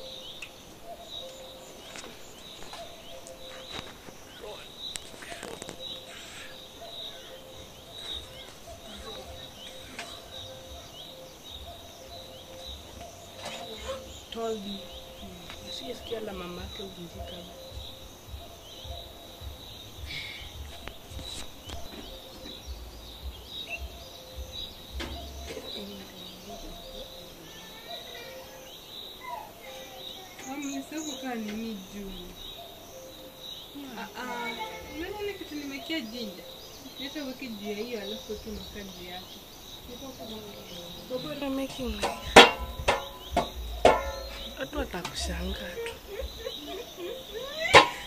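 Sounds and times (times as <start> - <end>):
bird chirping: 0.0 - 48.0
short knocks: 41.8 - 45.3.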